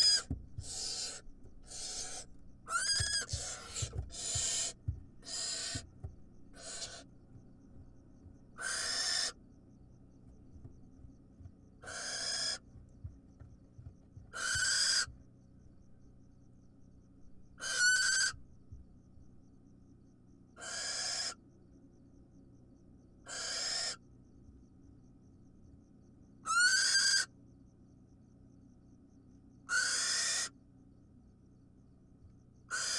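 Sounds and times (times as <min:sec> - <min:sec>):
owl chick hissing calls: 0:00.0 - 0:05.8, 0:06.5 - 0:07.1, 0:08.6 - 0:09.4, 0:11.8 - 0:12.6, 0:14.3 - 0:15.1, 0:17.6 - 0:18.4, 0:20.6 - 0:21.4, 0:23.3 - 0:24.0, 0:26.5 - 0:27.3, 0:29.7 - 0:30.5.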